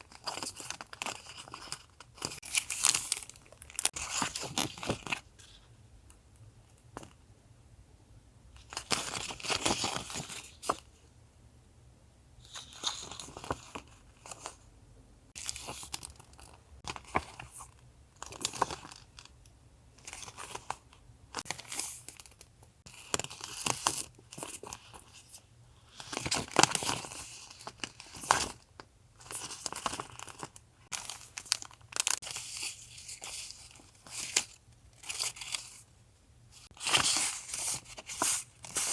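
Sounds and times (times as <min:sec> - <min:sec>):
packaging rustling and tearing: 0:00.0 - 0:05.2, 0:26.0 - 0:35.8.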